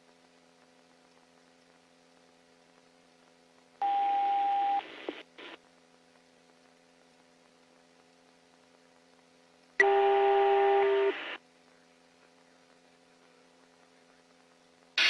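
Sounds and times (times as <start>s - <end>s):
faint steady hum: 0.0s - 15.0s
radio tones over hiss: 4.8s - 5.6s, 9.8s - 14.4s.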